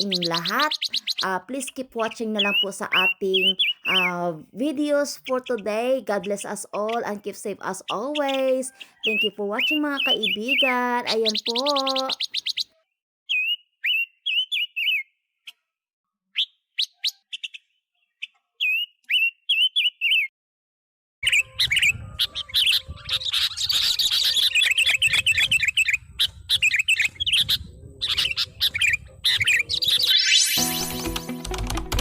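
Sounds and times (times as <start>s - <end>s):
birds chirping: 0.0s - 15.6s, 21.2s - 31.1s.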